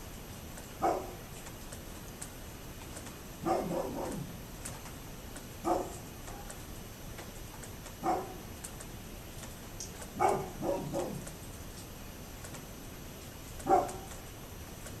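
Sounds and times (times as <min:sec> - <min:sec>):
dog barking: 0:00.8 - 0:01.2, 0:03.4 - 0:04.4, 0:05.6 - 0:06.5, 0:08.0 - 0:08.5, 0:10.2 - 0:11.3, 0:13.6 - 0:14.1.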